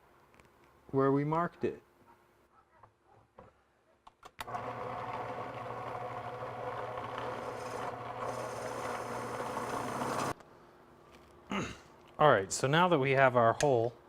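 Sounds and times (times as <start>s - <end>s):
drill press boring: 4.4s - 10.4s.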